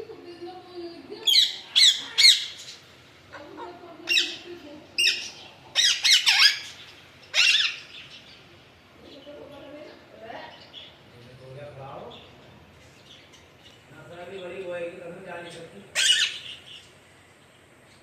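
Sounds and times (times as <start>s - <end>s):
parakeet squawking: 1.2s - 8.4s, 15.9s - 16.9s.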